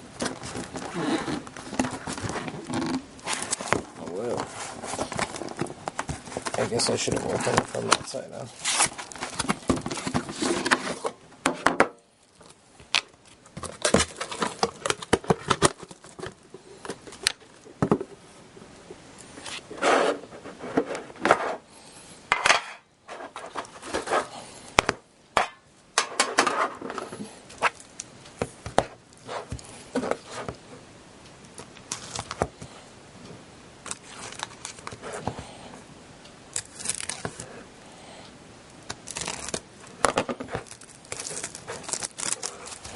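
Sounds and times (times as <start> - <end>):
packaging scraping and clicking: 0.2 - 11.2, 12.4 - 17.5, 23.1 - 24.5, 31.9 - 32.6, 33.8 - 35.5, 36.6 - 37.5, 38.9 - 42.9.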